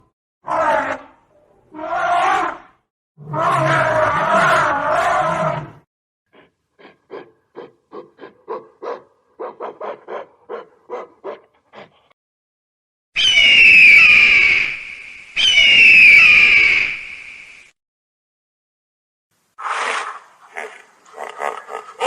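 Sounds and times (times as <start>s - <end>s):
animal roaring: 0.4s - 5.8s.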